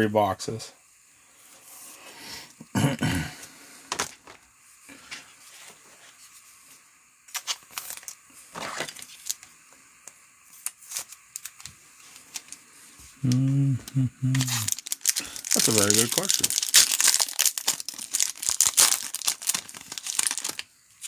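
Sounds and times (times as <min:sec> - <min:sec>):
foil wrapper crinkling and tearing: 0:07.3 - 0:09.5, 0:10.6 - 0:12.6, 0:14.3 - 0:20.7.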